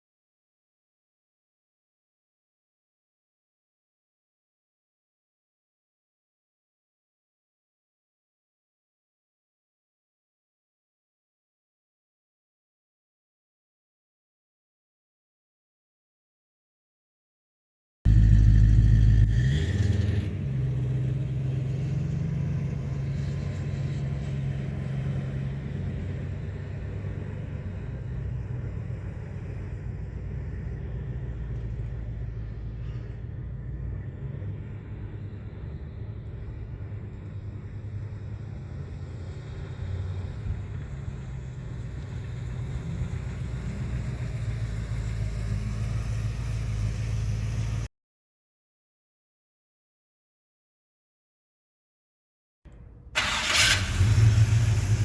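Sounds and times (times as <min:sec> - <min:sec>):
car engine starting: 0:18.1 - 0:24.4, 0:52.7 - 0:55.0
car engine idling: 0:52.7 - 0:55.0.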